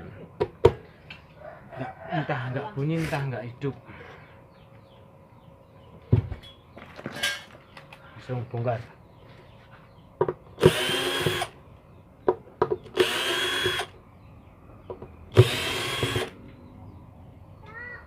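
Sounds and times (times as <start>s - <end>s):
electric screwdriver whine: 10.6s - 11.5s, 13.0s - 13.9s, 15.4s - 16.4s.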